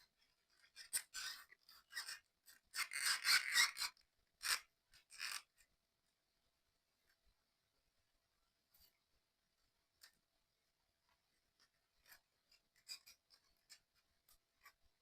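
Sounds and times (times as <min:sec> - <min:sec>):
plastic parts scraping and rubbing: 0:11.1 - 0:15.0.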